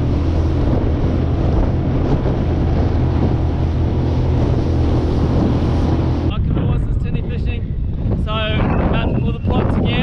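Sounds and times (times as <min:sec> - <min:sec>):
outboard motor running: 0:00.0 - 0:06.6
wind buffeting microphone: 0:00.0 - 0:10.0.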